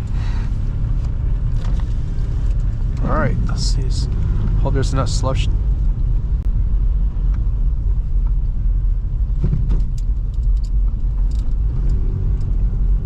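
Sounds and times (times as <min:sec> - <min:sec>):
car driving on slushy road: 0:00.0 - 0:06.3.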